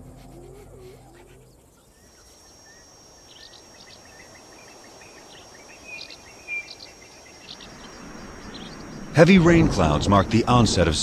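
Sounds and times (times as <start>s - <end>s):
high-pitched insect drone: 0.0s - 8.7s
small birds chirping: 0.0s - 9.5s.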